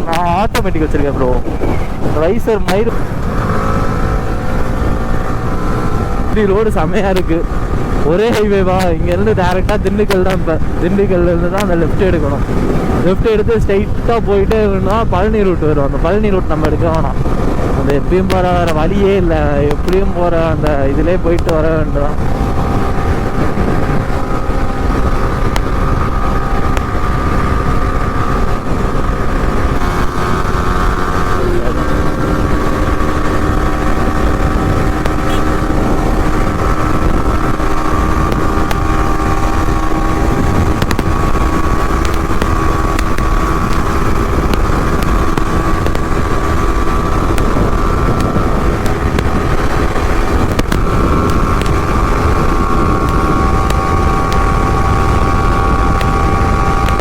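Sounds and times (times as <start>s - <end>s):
motorcycle engine cruising: 0.0s - 57.0s
wind rushing over microphone: 0.0s - 57.0s.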